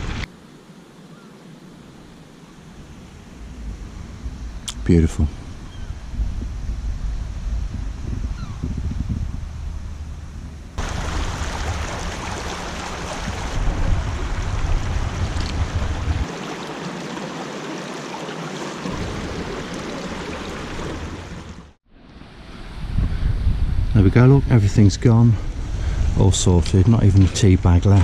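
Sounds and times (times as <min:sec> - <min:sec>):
wind buffeting microphone: 0:02.7 - 0:16.3, 0:22.4 - 0:28.0
surf washing over pebbles: 0:10.8 - 0:21.7.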